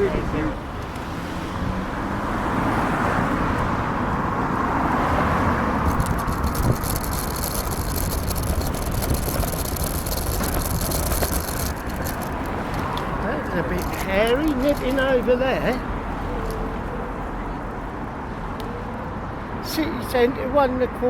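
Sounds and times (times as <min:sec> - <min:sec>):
car passing: 0:00.0 - 0:17.4
road traffic passing: 0:00.0 - 0:21.0
dense rattle: 0:05.8 - 0:15.1.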